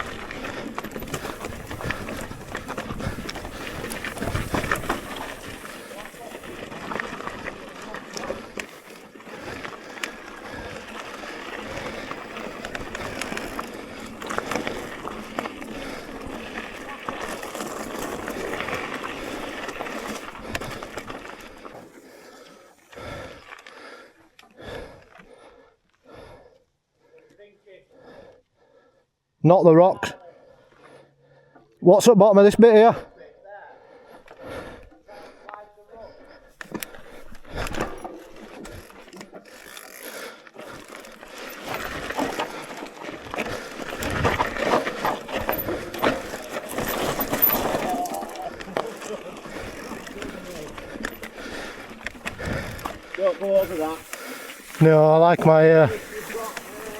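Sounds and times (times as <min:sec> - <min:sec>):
mountain bike tyre roar and rattles: 0:00.0 - 0:27.0, 0:33.8 - 0:56.9
rider breathing heavily: 0:00.0 - 0:29.4, 0:30.0 - 0:31.8, 0:32.8 - 0:56.9
chain and frame rattling: 0:37.6 - 0:51.4.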